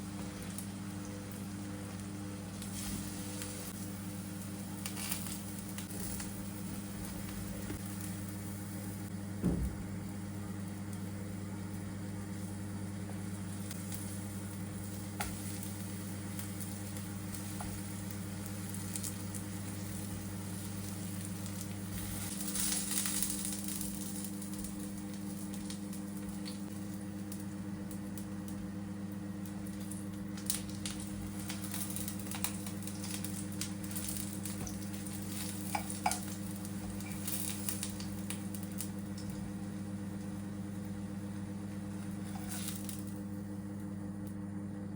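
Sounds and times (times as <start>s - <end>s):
food sizzling in a frying pan: 0.0s - 44.6s.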